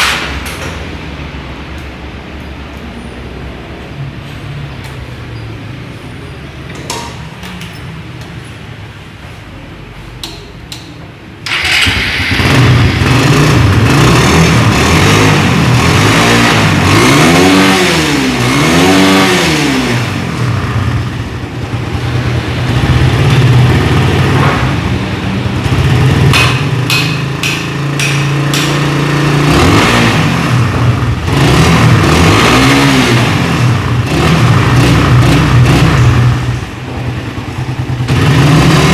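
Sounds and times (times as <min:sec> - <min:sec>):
engine revving: 0:11.5 - 0:38.9
motorcycle engine running: 0:11.5 - 0:38.9.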